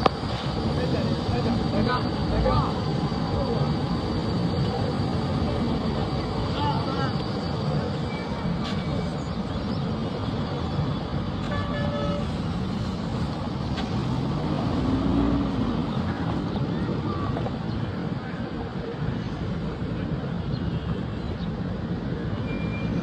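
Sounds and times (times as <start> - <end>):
vehicles passing: 0.0 - 23.0
car horn toot: 11.4 - 12.3.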